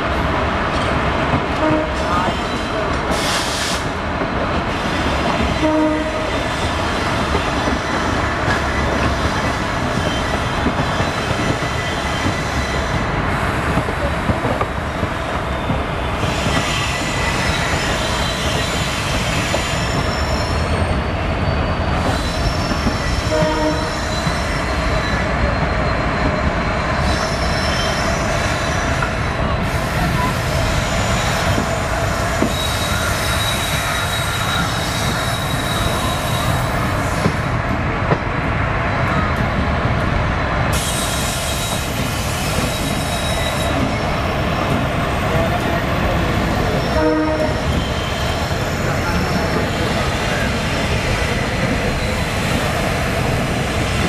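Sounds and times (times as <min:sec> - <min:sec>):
train wheels rumbling on rails: 0:00.0 - 0:54.0
train horn: 0:01.6 - 0:02.4, 0:05.6 - 0:06.4, 0:23.2 - 0:24.1, 0:46.9 - 0:47.8
high wheel squeal: 0:15.5 - 0:29.1, 0:29.8 - 0:37.3, 0:40.8 - 0:44.1.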